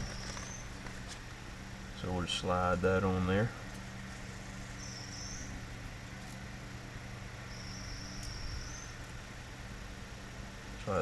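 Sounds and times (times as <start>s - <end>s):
cricket trilling: 0.0s - 1.1s, 3.8s - 5.8s, 7.4s - 9.2s
low background hum: 0.0s - 11.0s.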